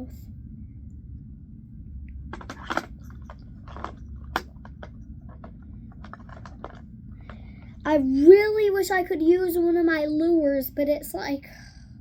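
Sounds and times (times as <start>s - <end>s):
fishing gear clicking and rattling: 2.3s - 7.8s.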